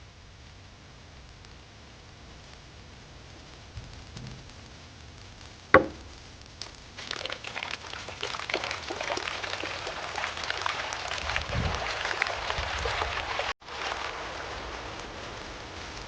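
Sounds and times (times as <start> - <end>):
crackling patter of ticks: 0.0 - 16.0
sharp crack: 5.4 - 8.2.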